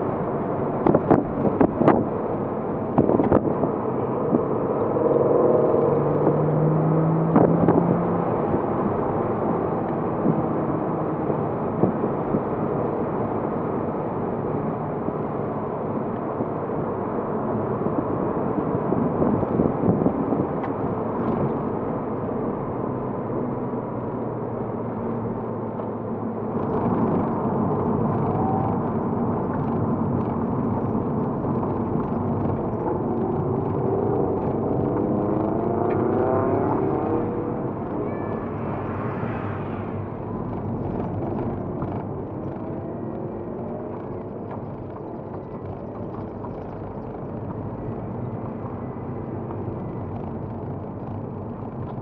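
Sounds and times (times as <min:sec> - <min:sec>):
road noise: 0:00.0 - 0:52.0
car engine running: 0:17.3 - 0:52.0.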